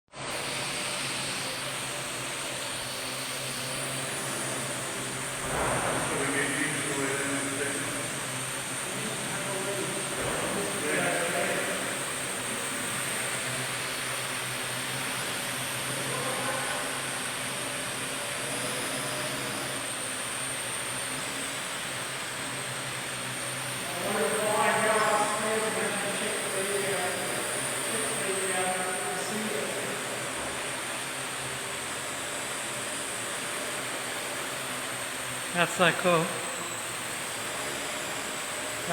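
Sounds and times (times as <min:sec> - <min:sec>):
drone propellers whirring: 0:00.2 - 0:38.9.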